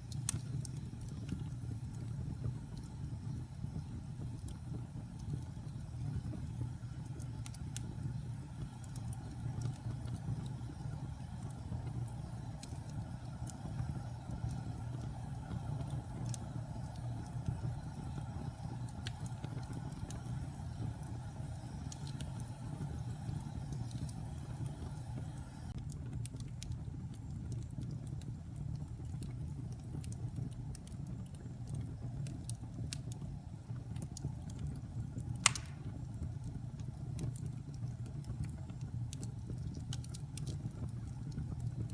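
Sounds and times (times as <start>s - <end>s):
fire crackling and popping: 0.0s - 41.9s
wood fire rumbling: 0.0s - 41.9s.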